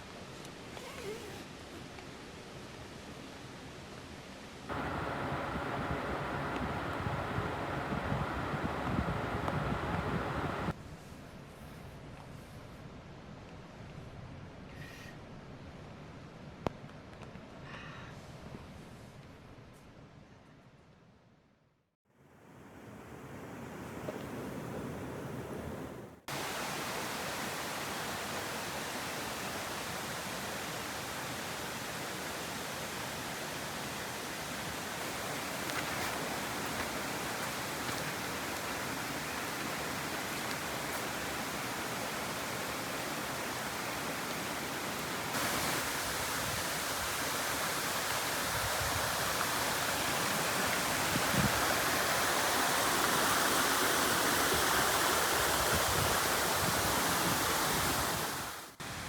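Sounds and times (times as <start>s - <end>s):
flowing water rushing: 4.7s - 10.7s, 22.5s - 59.0s.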